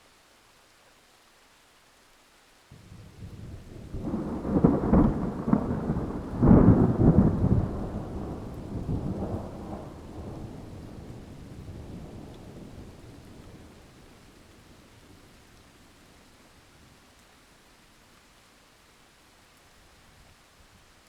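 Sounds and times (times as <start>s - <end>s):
rain hissing: 0.0s - 21.0s
thunder rumbling and cracking: 2.8s - 13.9s.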